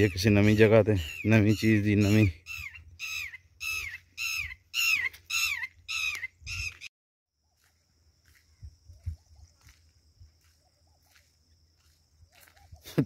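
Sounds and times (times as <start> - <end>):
bird calling loudly: 0.0 - 6.9
footsteps on dirt track: 5.0 - 13.0.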